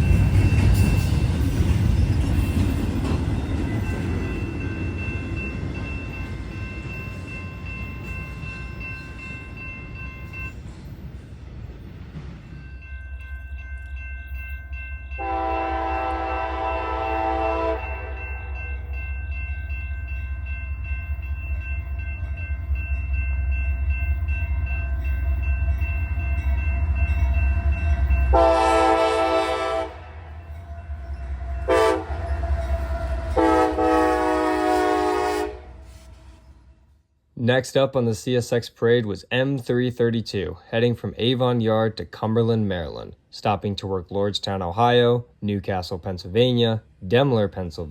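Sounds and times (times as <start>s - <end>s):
diesel locomotive engine rumbling: 0.0s - 47.9s
train air horn: 15.2s - 18.6s, 28.3s - 30.4s, 31.4s - 36.8s.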